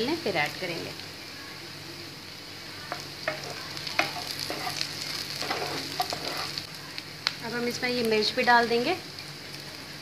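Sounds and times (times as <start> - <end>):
food sizzling in hot oil: 0.0 - 10.0
spatula scraping a pan: 2.9 - 6.7.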